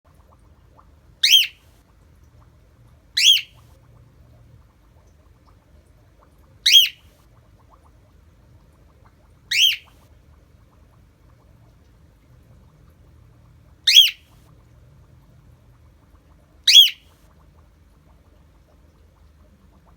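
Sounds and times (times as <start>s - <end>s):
cockatiel shrill calls: 1.2s - 1.6s, 3.2s - 3.6s, 6.7s - 7.0s, 9.5s - 9.9s, 13.9s - 14.2s, 16.7s - 17.0s.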